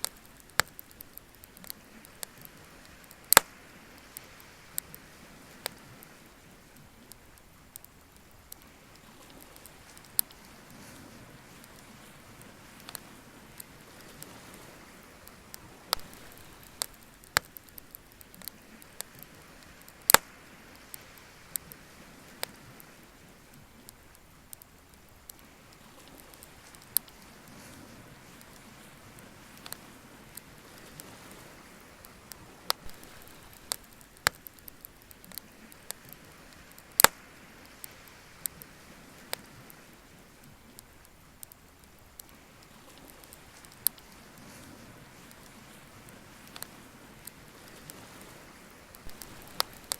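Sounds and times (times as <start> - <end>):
sharp pops: 0.0 - 4.2, 15.9 - 19.2, 19.9 - 20.4, 32.7 - 35.4, 36.8 - 37.3, 49.0 - 49.9
bonfire crackling: 0.0 - 49.9
faint steady hiss: 0.0 - 49.9.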